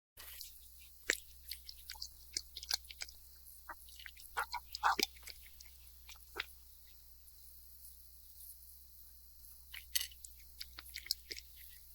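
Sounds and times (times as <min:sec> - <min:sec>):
cat crunching dry kibble: 0:00.3 - 0:03.2, 0:09.6 - 0:11.9.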